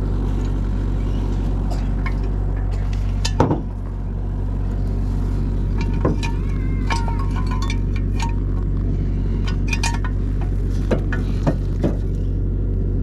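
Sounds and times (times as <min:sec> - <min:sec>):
excavator engine running: 0:00.0 - 0:13.0
loud metallic clank: 0:05.7 - 0:08.7.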